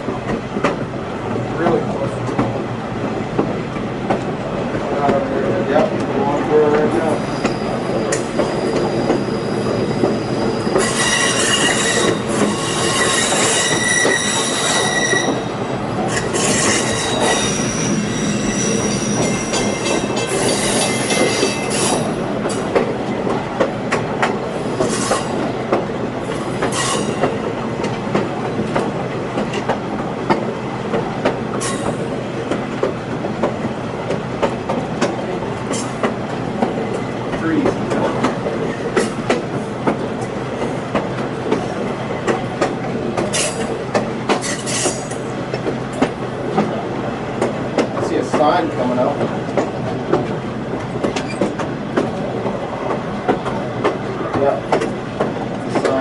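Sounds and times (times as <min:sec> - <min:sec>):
train rolling on rails: 0:00.0 - 0:56.0
wheels squealing: 0:07.2 - 0:22.2.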